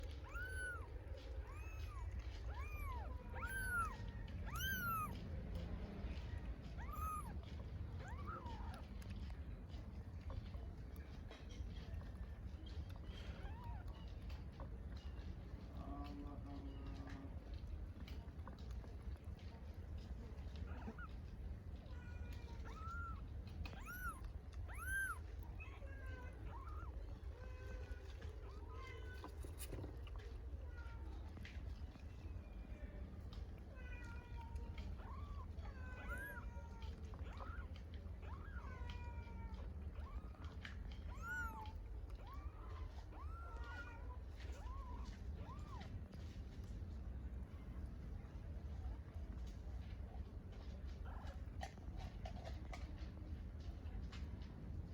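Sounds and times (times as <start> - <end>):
kittens meowing: 0.0 - 9.3, 12.7 - 14.6, 20.5 - 31.2, 33.6 - 45.9.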